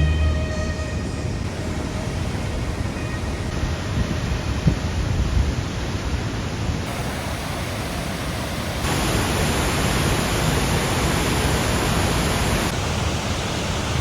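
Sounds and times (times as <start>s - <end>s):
waterfall rushing: 6.8s - 14.0s.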